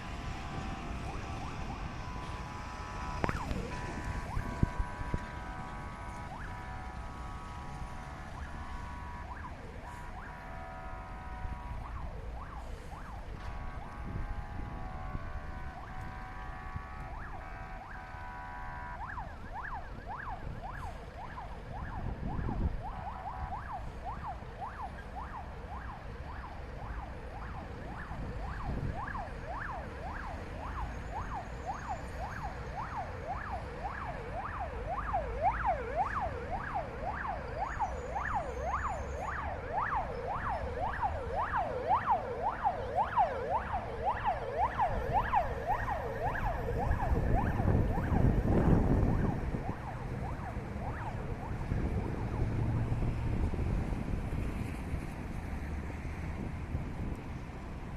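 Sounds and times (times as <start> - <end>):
fire truck siren yelping: 0.0 - 54.6
low vehicle rumble: 0.0 - 57.9
multi-tone air horn blast: 1.8 - 11.8, 13.4 - 19.1.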